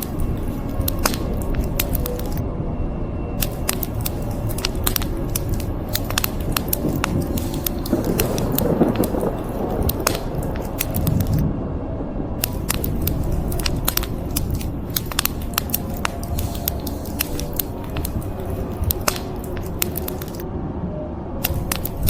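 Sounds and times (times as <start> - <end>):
wood fire crackling and popping: 0.0 - 2.4, 3.4 - 11.4, 12.4 - 20.4, 21.4 - 22.0
rain rushing: 3.4 - 11.4.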